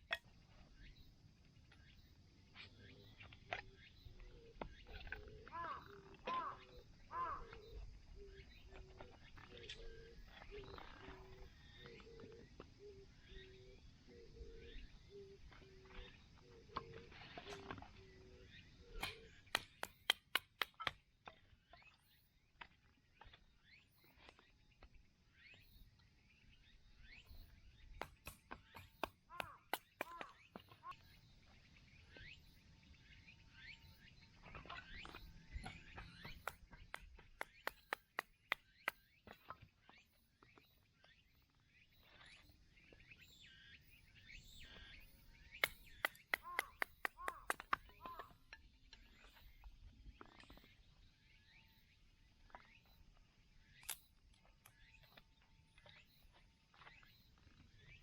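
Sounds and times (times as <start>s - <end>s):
bird calling: 2.6s - 21.0s, 27.0s - 31.2s, 33.5s - 39.4s, 44.3s - 48.4s
axe chopping wood: 19.0s - 21.0s, 28.0s - 30.4s
sharp clicks: 36.3s - 39.0s, 45.6s - 47.9s.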